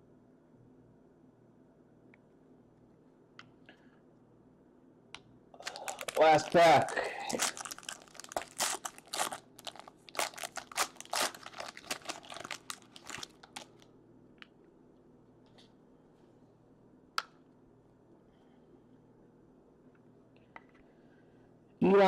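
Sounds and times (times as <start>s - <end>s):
wrapper being torn and crinkled: 5.6s - 13.9s.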